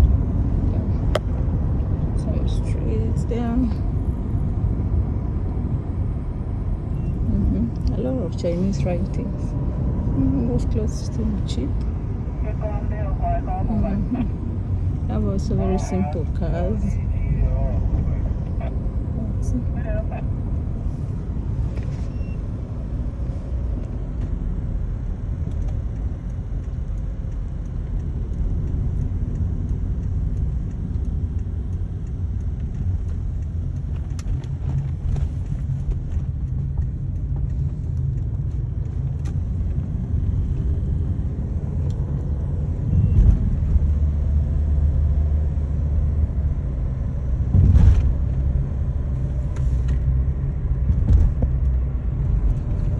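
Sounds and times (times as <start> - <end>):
road vehicle rumble: 0.0 - 52.9
vehicle bumps: 47.5 - 48.4, 50.9 - 51.6.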